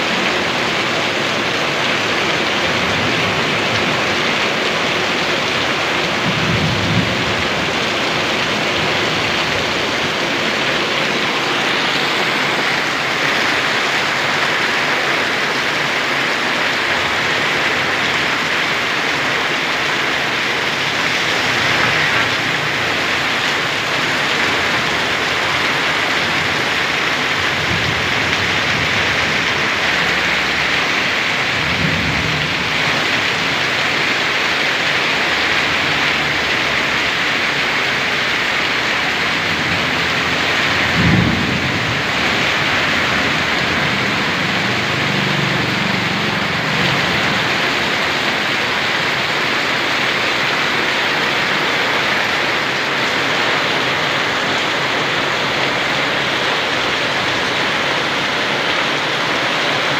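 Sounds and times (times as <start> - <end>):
heavy rain hissing: 0.0 - 59.9
thunder rumbling: 2.7 - 15.6, 16.5 - 34.4, 38.5 - 48.2.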